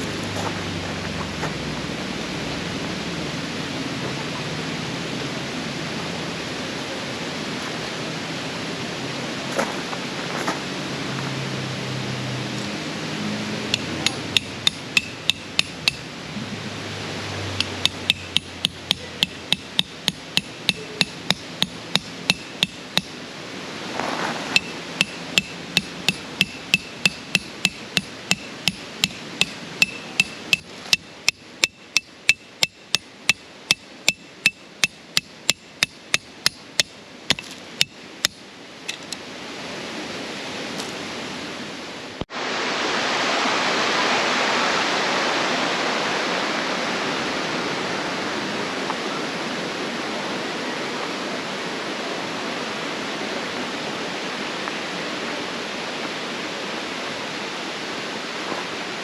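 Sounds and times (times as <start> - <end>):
steady rushing noise: 0.0 - 59.0
hammer striking metal tent pegs: 13.7 - 16.1, 17.6 - 23.2, 24.6 - 38.4.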